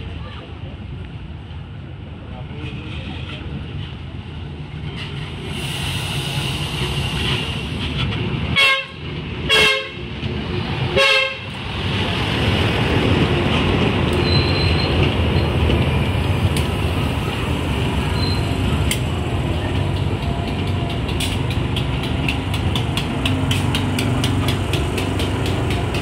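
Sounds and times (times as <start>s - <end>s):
train wheels rumbling on rails: 0.0s - 26.0s
train horn blasts: 8.6s - 10.0s, 10.9s - 11.5s.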